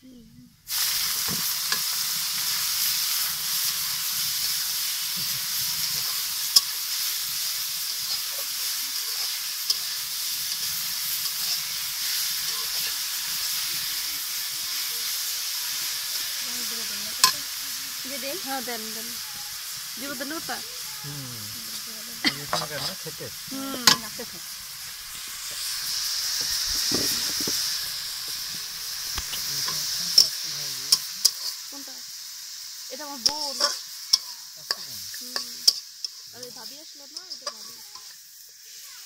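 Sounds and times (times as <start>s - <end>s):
greens sizzling in hot oil: 0.6s - 39.0s
metal spatula scraping wok: 0.7s - 14.0s, 21.6s - 31.7s, 33.2s - 38.3s.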